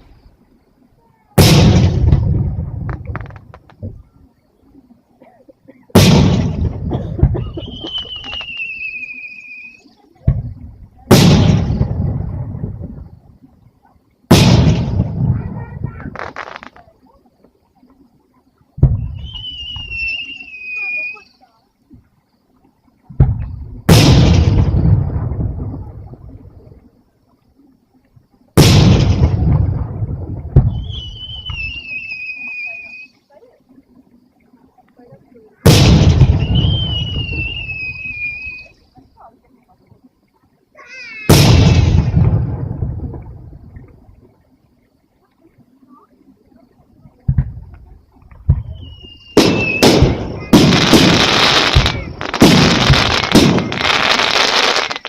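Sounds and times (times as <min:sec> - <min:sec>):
firework shells booming: 0:01.4 - 0:04.0, 0:05.9 - 0:08.7, 0:10.2 - 0:13.0, 0:14.3 - 0:16.8, 0:23.1 - 0:26.1, 0:28.6 - 0:31.8, 0:35.6 - 0:37.6, 0:41.3 - 0:43.4, 0:48.4 - 0:55.0
high wavering whistle: 0:07.6 - 0:10.0, 0:19.0 - 0:21.5, 0:30.7 - 0:33.2, 0:36.4 - 0:38.8, 0:48.6 - 0:49.9.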